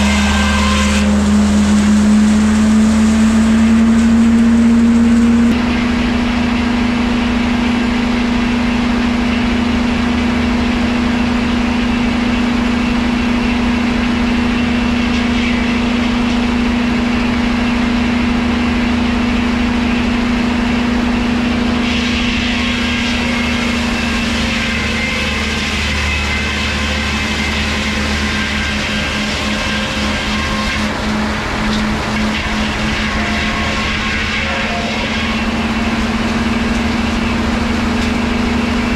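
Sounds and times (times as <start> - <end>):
engine humming: 0.0 - 38.9.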